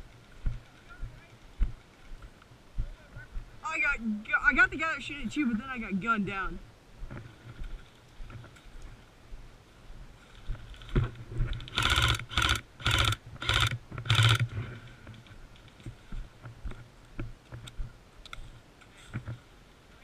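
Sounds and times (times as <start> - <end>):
airsoft gun full-auto bursts: 11.7 - 14.5.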